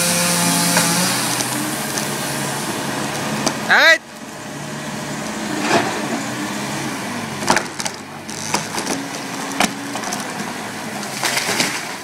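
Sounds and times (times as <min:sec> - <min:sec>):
tree trunk cracking and splintering: 0:00.1 - 0:02.2, 0:07.4 - 0:12.0.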